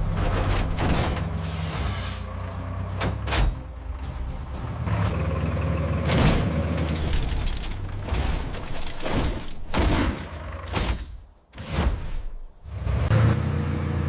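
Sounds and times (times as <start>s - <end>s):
heavy machinery engine rumble: 0.0s - 10.8s.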